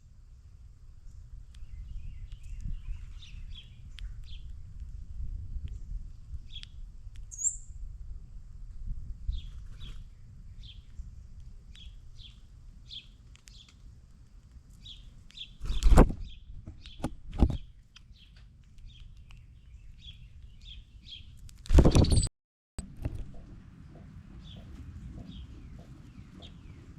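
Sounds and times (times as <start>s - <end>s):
low outdoor rumble: 0.0s - 15.5s, 22.8s - 26.9s
songbirds chirping: 0.2s - 7.8s, 9.2s - 21.4s, 23.0s - 26.9s.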